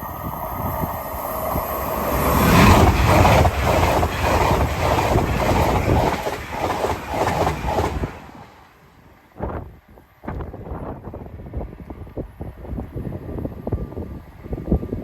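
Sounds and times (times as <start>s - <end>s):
train wheels clattering: 2.0s - 8.6s.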